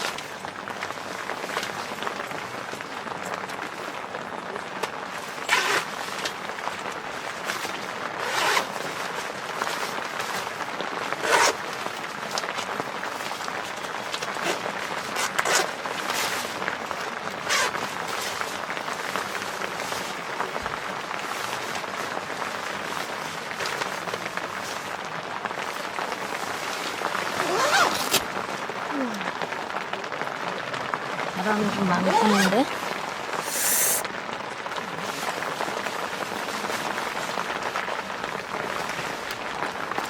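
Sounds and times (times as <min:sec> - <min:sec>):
rain on a tent: 0:00.0 - 0:40.0
fabric swishes: 0:33.4 - 0:34.0.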